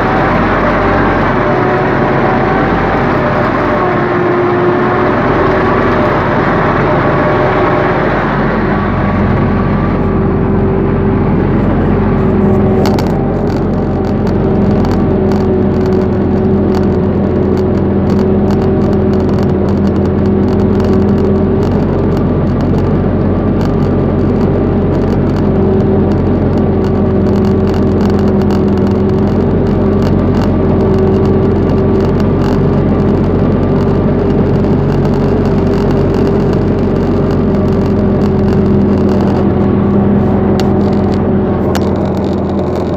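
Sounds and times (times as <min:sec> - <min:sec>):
tractor diesel engine under load: 0:00.0 - 0:42.9
faint irregular clicking: 0:12.4 - 0:42.9.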